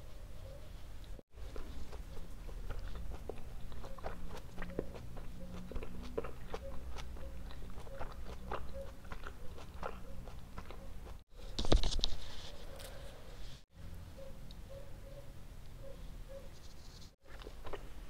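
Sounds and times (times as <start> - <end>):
mouth chewing: 1.0 - 11.2, 17.2 - 18.0.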